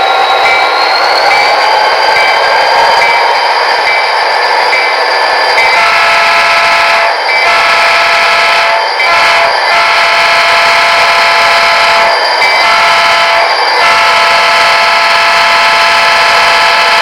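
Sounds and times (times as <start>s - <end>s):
model train horn blasts: 5.7s - 17.0s.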